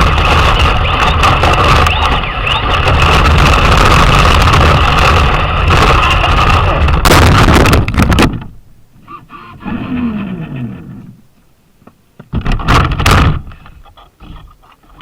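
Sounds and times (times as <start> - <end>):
electric motor whining: 9.1 - 11.2
tyre and chassis rattling: 12.2 - 15.0.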